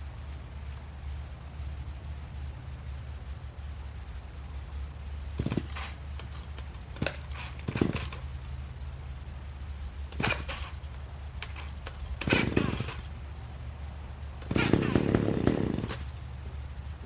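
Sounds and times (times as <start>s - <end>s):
steady low hum: 0.0s - 17.0s
metallic clinks and rattles: 5.4s - 8.5s, 10.1s - 13.7s, 14.4s - 16.4s.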